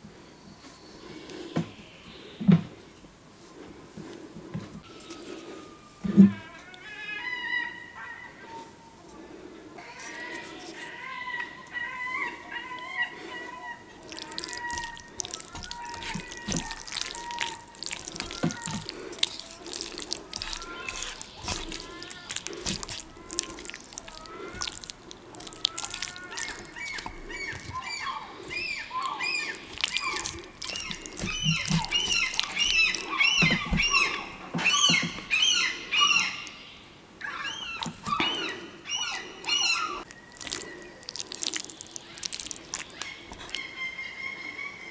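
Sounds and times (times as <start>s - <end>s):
wet chewing: 11.6s - 36.6s, 37.3s - 44.9s
lip smacking: 12.8s - 35.4s, 37.5s - 44.9s
slurping noodles: 13.9s - 35.2s, 37.6s - 43.8s.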